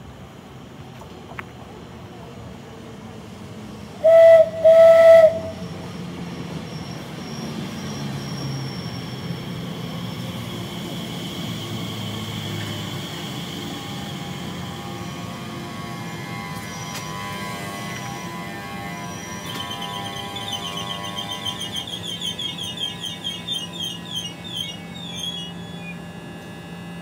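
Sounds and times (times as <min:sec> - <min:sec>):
train rumbling past: 0:00.0 - 0:27.0
train horn blasts: 0:04.0 - 0:05.6.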